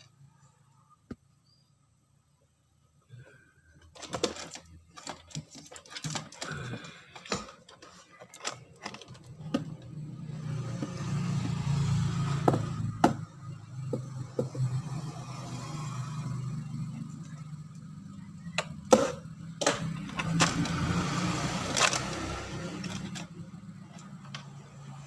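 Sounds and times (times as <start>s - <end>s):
wires and parts being handled: 3.7s - 14.8s, 17.0s - 25.0s.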